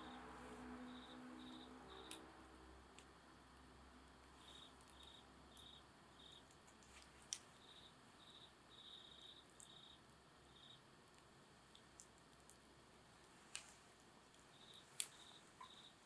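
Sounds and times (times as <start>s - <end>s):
insects chirping: 0.0s - 16.0s
campfire wood crackling: 11.0s - 15.5s.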